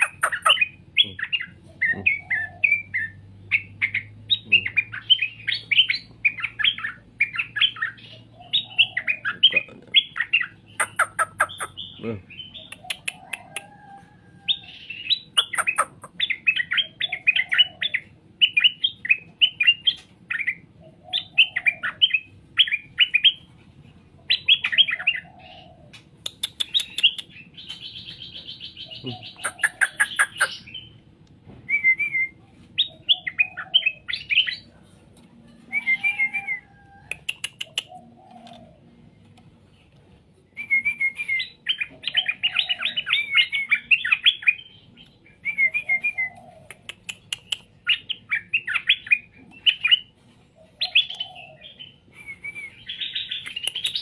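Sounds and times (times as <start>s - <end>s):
bird warbling song: 0.0s - 54.0s
sharp clicks: 25.9s - 27.8s, 37.1s - 37.9s, 46.7s - 47.7s.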